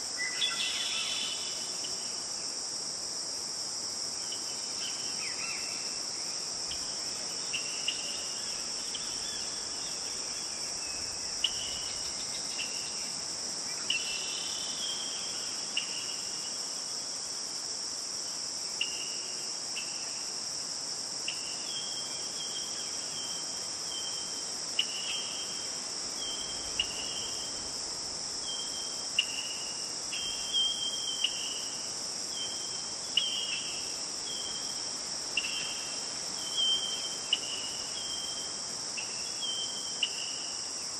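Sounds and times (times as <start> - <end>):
high-pitched insect chorus: 0.0 - 40.9.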